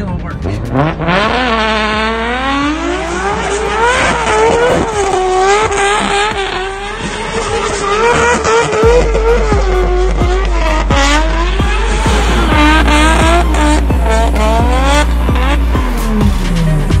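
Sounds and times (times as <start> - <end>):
car engine revving hard: 0.3 - 17.0
tyres spinning and squealing: 1.2 - 10.1.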